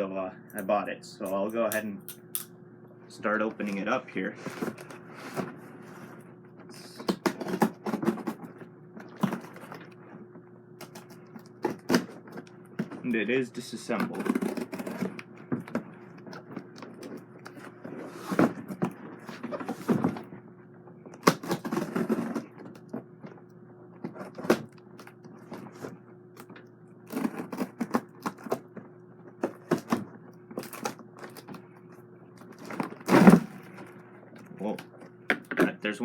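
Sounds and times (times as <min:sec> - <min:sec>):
faint steady hum: 0:00.0 - 0:36.0
box packing rustling: 0:04.4 - 0:10.0, 0:10.8 - 0:13.2, 0:13.8 - 0:20.3, 0:21.2 - 0:23.0, 0:27.1 - 0:28.8, 0:29.4 - 0:31.6, 0:32.4 - 0:35.2.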